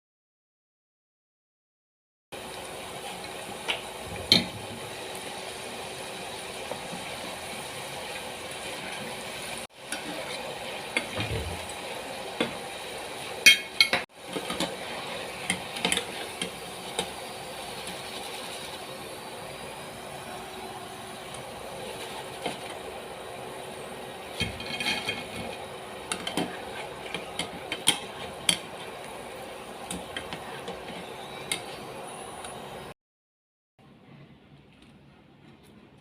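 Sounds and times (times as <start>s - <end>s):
utensils clinking against dishes: 13.4s - 14.8s, 15.4s - 17.1s, 24.3s - 29.0s, 29.8s - 31.8s.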